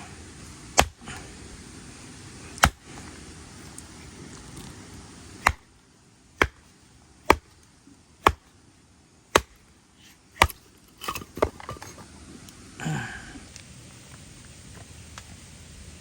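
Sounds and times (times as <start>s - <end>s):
wood chopping strikes: 0.7s - 1.2s, 2.6s - 3.0s, 5.4s - 5.7s, 6.4s - 7.6s, 8.2s - 8.6s, 9.3s - 9.7s, 10.4s - 12.0s.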